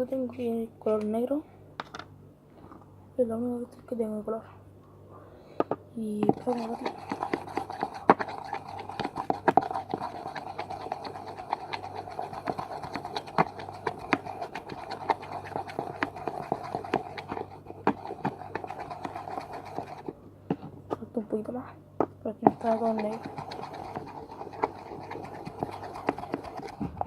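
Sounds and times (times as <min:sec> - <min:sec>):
utensil stirring glue in a container: 0:06.0 - 0:21.5, 0:22.2 - 0:27.0.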